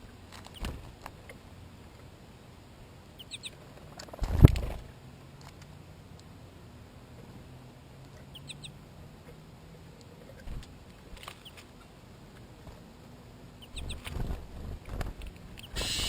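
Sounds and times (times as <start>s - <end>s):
small animal chirping: 3.2s - 3.6s, 8.2s - 8.8s, 13.6s - 14.1s, 15.6s - 16.0s.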